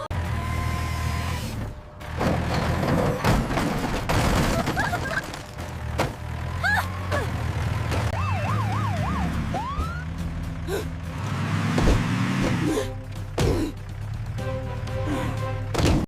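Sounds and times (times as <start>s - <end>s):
police siren wailing: 8.1s - 10.3s.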